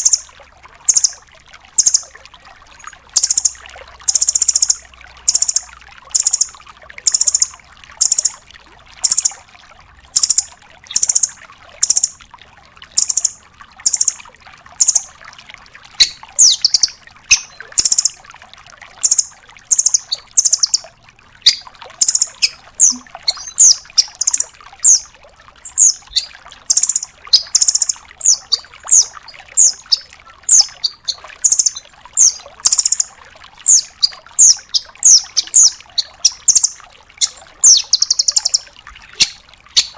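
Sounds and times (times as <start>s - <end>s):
nuthatch calling: 1.8s - 2.0s, 3.2s - 3.5s, 4.1s - 6.5s, 10.2s - 12.1s, 13.9s - 14.2s, 16.0s - 18.1s, 19.0s - 20.8s, 21.4s - 25.0s, 25.6s - 33.1s, 33.7s - 38.6s.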